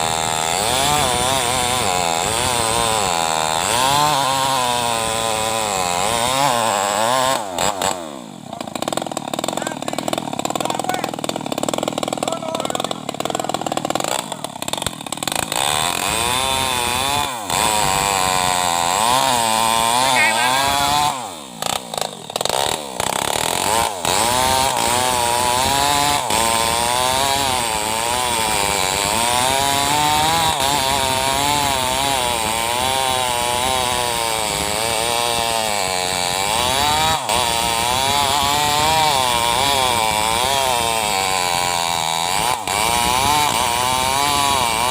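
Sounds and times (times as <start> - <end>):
chainsaw cutting wood: 0.0 - 44.9.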